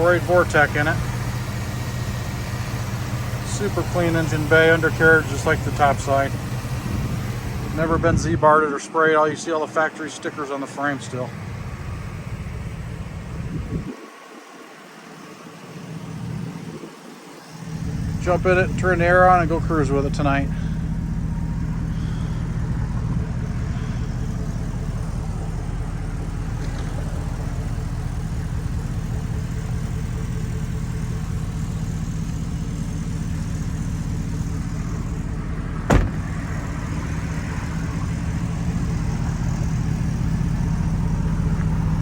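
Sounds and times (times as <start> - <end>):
pickup engine idling: 0.0 - 42.0
sharp knock: 35.9 - 36.4.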